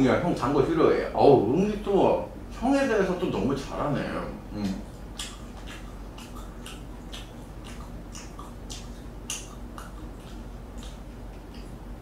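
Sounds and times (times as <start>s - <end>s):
man chewing: 4.6s - 12.0s.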